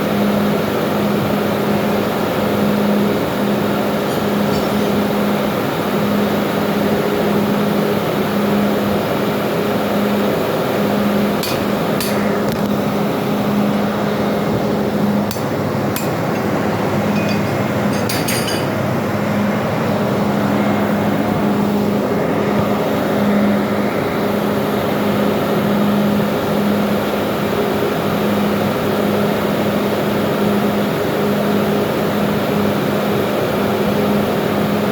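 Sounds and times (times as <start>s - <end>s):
engine-room machinery hum: 0.0s - 34.9s
metallic clinks of hand tools: 17.1s - 18.8s.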